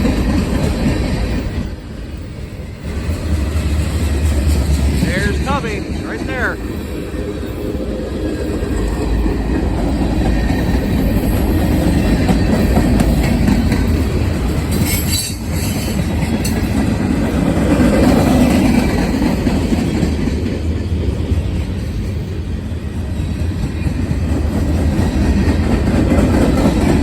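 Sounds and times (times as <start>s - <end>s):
freight train wheels rumbling: 0.0s - 27.0s
wheels clacking over rail joints: 7.8s - 20.7s.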